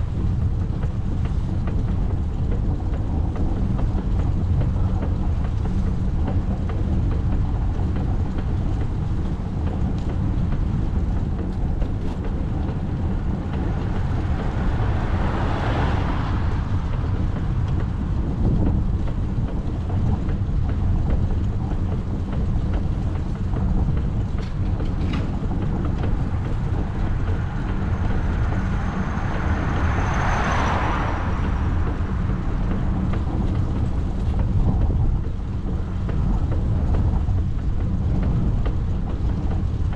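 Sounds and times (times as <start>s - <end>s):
road and wind noise: 0.0s - 39.9s
cars passing: 10.2s - 21.3s, 22.3s - 39.9s.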